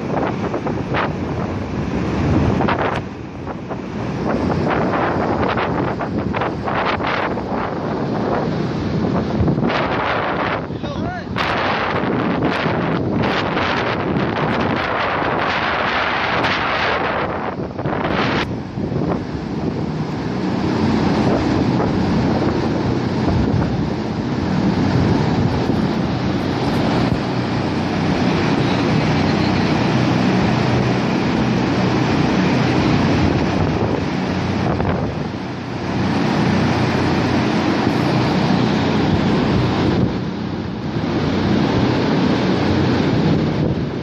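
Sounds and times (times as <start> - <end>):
water rushing along floor: 0.0 - 44.0
low hum: 14.9 - 44.0.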